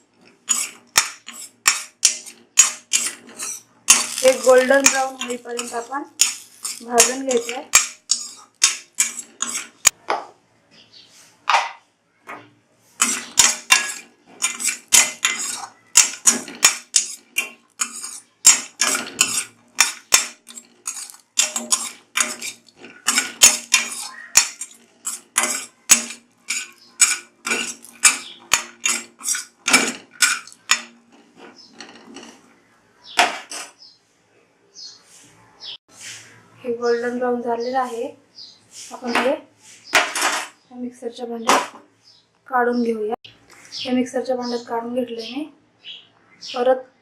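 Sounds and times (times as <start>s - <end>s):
spatula scraping a pan: 0.0s - 10.0s, 12.8s - 32.6s, 33.2s - 33.8s.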